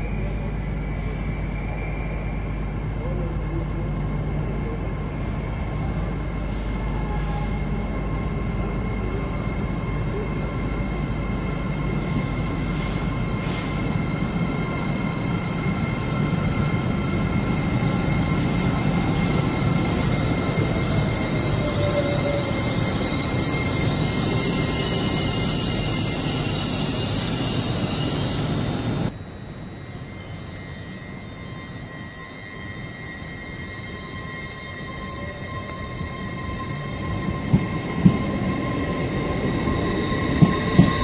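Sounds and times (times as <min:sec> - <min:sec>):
passenger train passing: 0:00.0 - 0:41.0
rushing hiss of carriages: 0:12.0 - 0:13.9.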